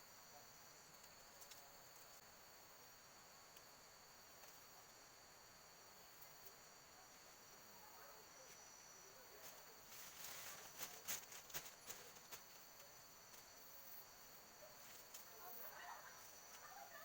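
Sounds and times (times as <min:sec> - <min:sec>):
insects chirring: 0:00.0 - 0:17.0
close clicks and rustles: 0:09.4 - 0:13.5.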